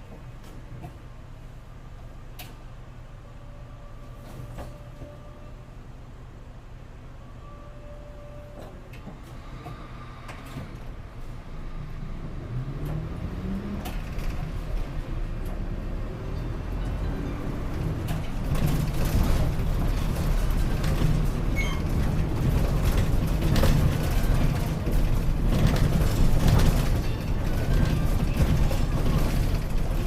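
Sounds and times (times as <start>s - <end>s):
bus engine and road rumble: 0.0s - 30.0s.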